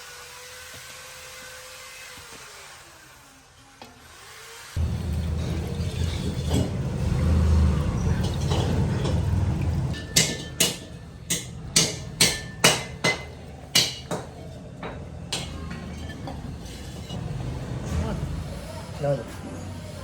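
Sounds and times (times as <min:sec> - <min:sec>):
low rumble: 0:04.8 - 0:10.0
hammer striking metal: 0:04.8 - 0:17.3.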